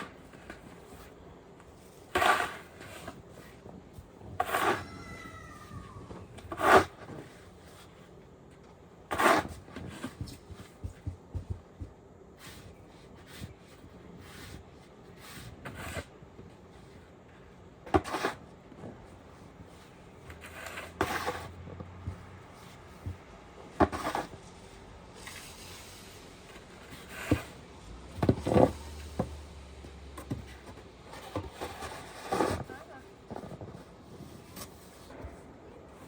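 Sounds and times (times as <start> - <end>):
rubbing or scraping: 4.2 - 7.9, 19.7 - 23.1, 23.8 - 29.4, 30.2 - 35.4.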